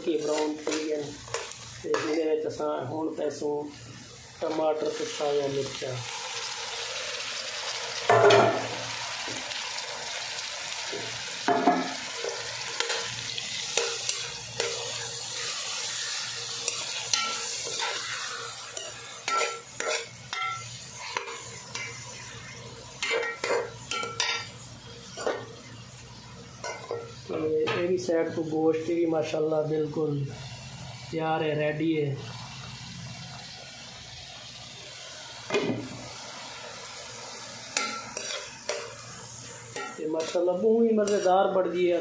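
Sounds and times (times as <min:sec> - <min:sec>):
vegetables sizzling in oil: 0:00.0 - 0:42.0
metal spoon scraping a pot: 0:18.8 - 0:22.0, 0:37.8 - 0:38.9.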